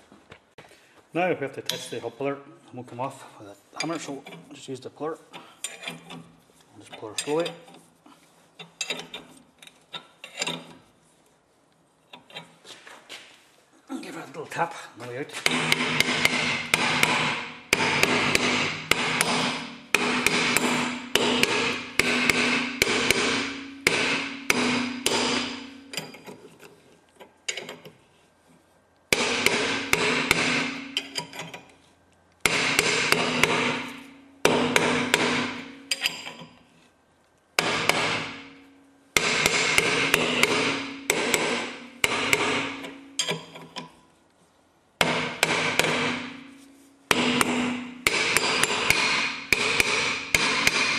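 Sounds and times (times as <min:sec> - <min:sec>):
hammer striking metal puller: 0:15.4 - 0:26.4, 0:29.1 - 0:31.7, 0:32.5 - 0:36.6, 0:37.6 - 0:38.6, 0:39.2 - 0:44.0, 0:45.0 - 0:50.9.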